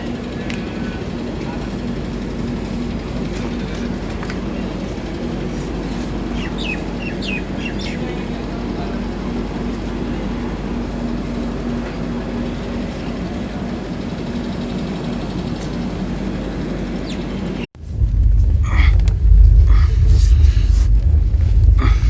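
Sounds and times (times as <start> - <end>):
railway carriage rumble and hum: 0.0 - 22.0.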